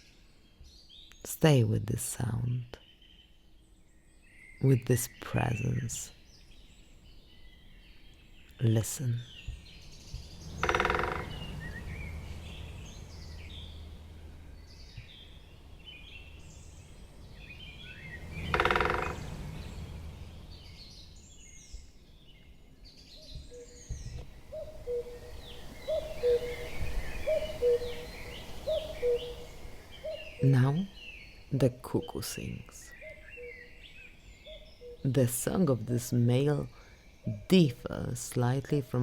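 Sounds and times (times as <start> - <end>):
songbird chirps: 0.0 - 39.0
woodpecker drumming on wood: 10.2 - 11.5, 18.4 - 19.4
cuckoo calling: 10.6 - 13.8, 17.6 - 19.4, 23.2 - 31.9.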